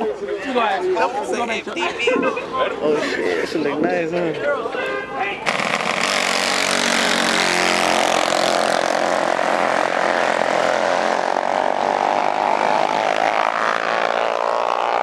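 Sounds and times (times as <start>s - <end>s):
mini bike engine buzzing: 5.5s - 15.0s.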